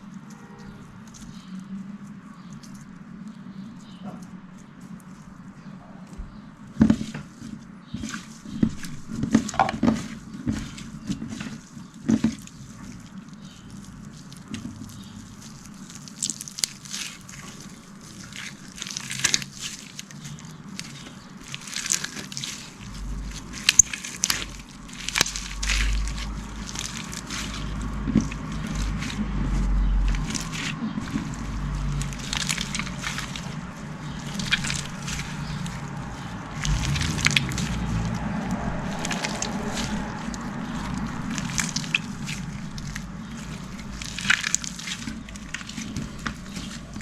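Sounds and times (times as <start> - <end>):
slime squished by hand: 6.9 - 47.0
low rumble: 21.9 - 47.0.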